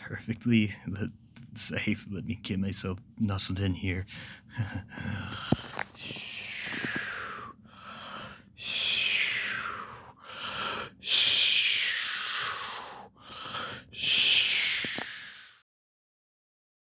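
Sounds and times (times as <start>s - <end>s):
person breathing in sleep: 4.1s - 15.6s.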